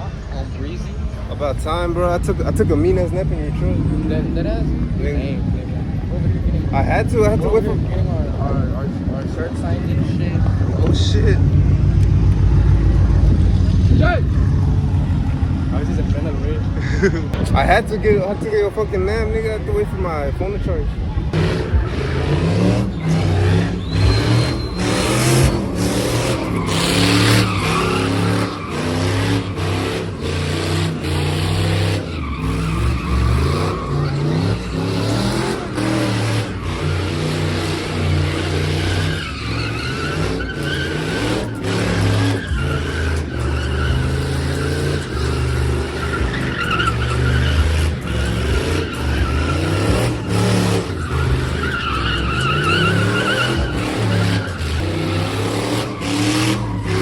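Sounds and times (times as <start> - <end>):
tires squealing: 0.0 - 57.0
truck engine revving: 0.0 - 57.0.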